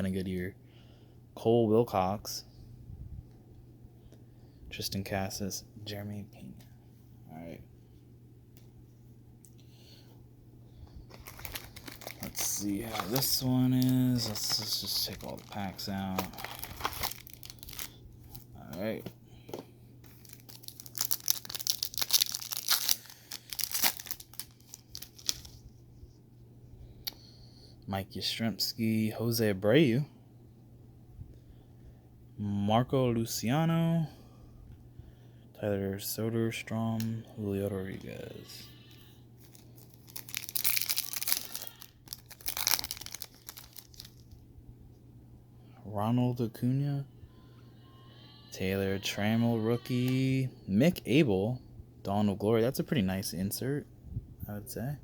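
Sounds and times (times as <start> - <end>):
foil wrappers crinkling: 11.0 - 25.6, 38.0 - 44.4.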